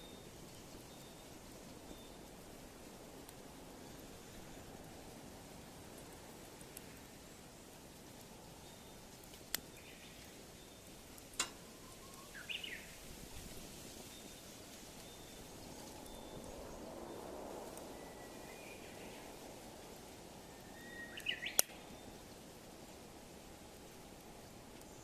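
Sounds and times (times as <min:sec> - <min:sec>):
outdoor hiss: 0:00.0 - 0:25.0
wood fire burning: 0:00.0 - 0:25.0
firewood popping: 0:02.6 - 0:07.2, 0:07.9 - 0:14.0, 0:21.4 - 0:21.9
bird chirping: 0:11.6 - 0:13.0, 0:20.6 - 0:22.2.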